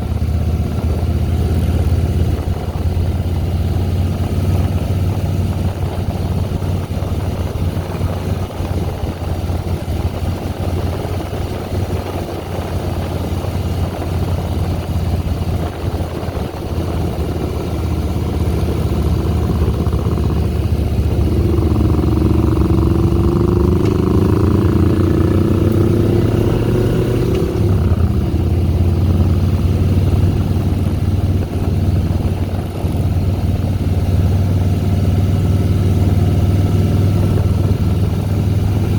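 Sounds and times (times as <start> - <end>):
motorcycle engine running: 0.0 - 38.9
rising whine: 15.2 - 33.0.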